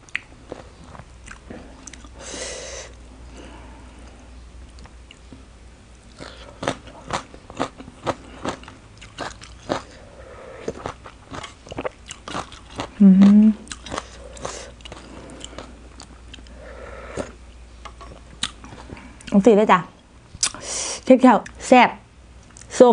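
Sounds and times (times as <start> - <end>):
chewing crunchy salad: 0.1 - 2.2, 4.6 - 16.6, 17.2 - 19.4, 22.4 - 22.8.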